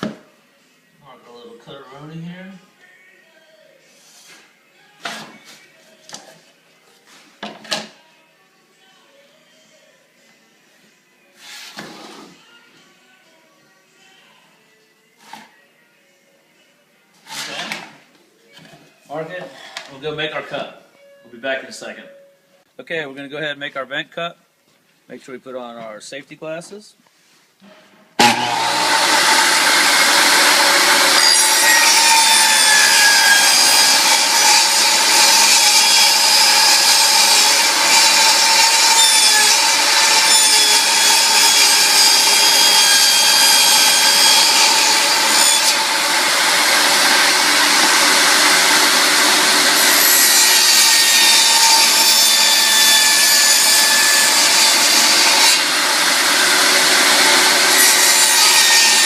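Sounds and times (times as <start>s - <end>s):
power saw cutting board: 28.2s - 59.0s.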